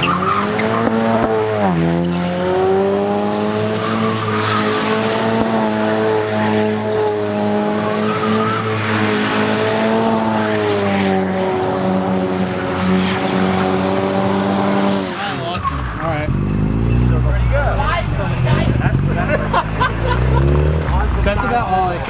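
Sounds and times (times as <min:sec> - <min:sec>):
car engine at high revs: 0:00.0 - 0:22.0
tires squealing: 0:00.0 - 0:22.0.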